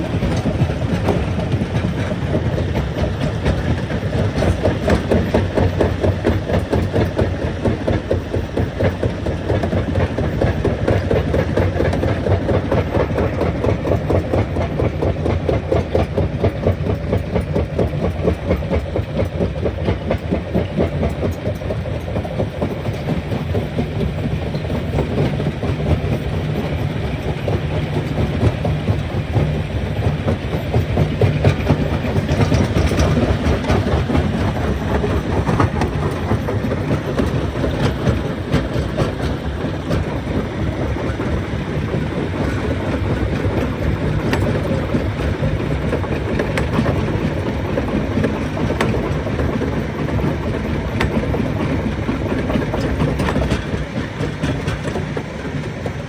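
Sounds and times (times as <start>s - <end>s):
rattling clatter: 0.0s - 56.0s.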